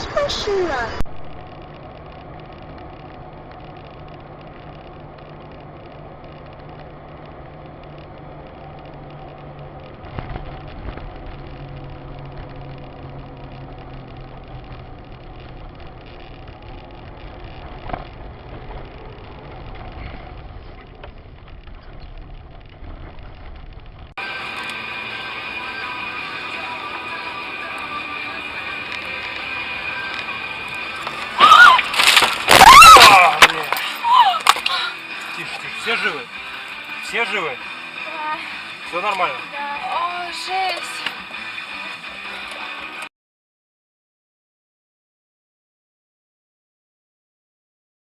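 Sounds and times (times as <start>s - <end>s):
car engine running: 0.0s - 43.1s
music: 24.2s - 31.8s, 32.8s - 43.1s.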